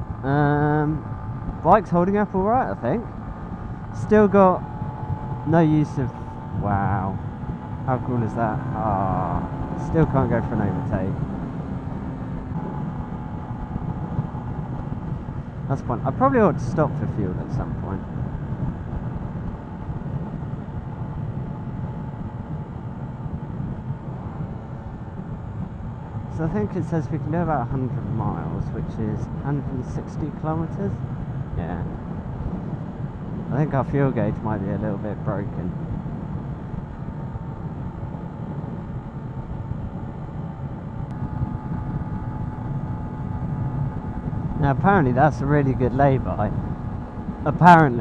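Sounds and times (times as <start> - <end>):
motorbike engine running: 0.0 - 16.5
motorcycle engine running: 0.0 - 48.0
wind and road noise: 0.0 - 48.0.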